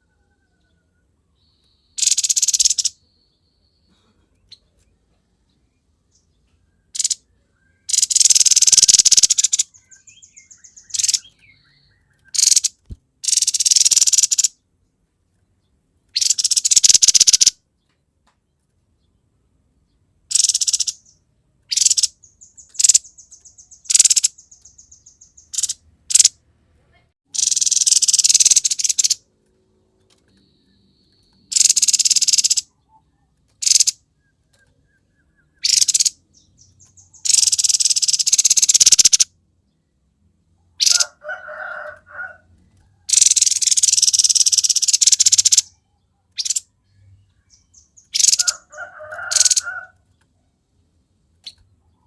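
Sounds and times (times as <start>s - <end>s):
bird harsh chattering: 2.0s - 3.0s, 7.0s - 7.2s, 7.9s - 11.4s, 12.3s - 14.6s, 16.2s - 17.6s, 20.3s - 26.3s, 27.3s - 29.2s, 31.5s - 32.7s, 33.6s - 34.0s, 35.6s - 36.2s, 37.0s - 39.3s, 40.8s - 41.2s, 43.1s - 45.7s, 46.4s - 46.7s, 47.8s - 49.9s.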